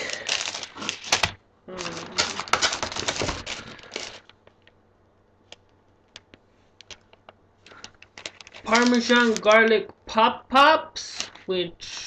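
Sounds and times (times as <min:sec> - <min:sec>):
plastic bags crinkling: 0:00.0 - 0:04.7, 0:06.9 - 0:09.8.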